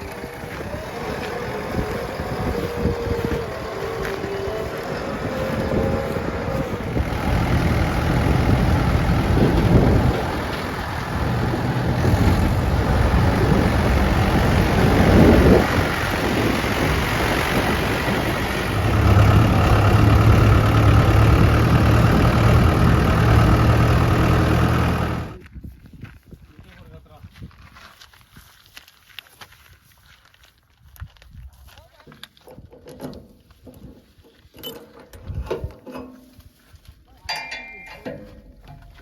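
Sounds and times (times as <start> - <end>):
heavy diesel engine running: 0.0 - 25.4.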